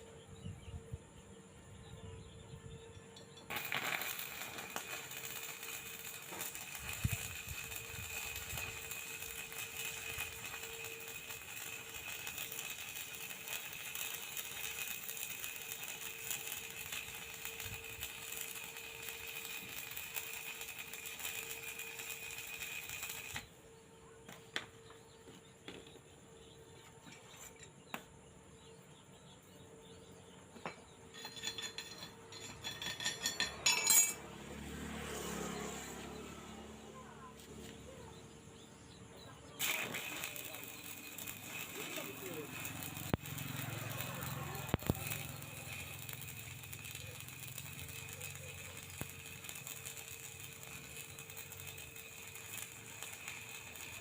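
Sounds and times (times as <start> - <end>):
arc welding crackle: 3.4 - 23.6, 35.1 - 54.0
light metallic clinking: 31.1 - 34.2.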